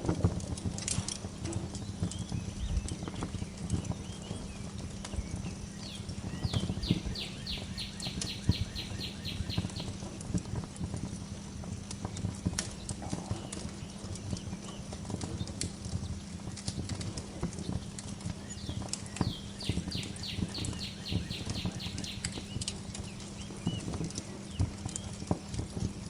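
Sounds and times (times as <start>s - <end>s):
wood fire crackling: 0.0s - 26.0s
songbird trilling: 5.8s - 10.0s, 18.5s - 22.6s.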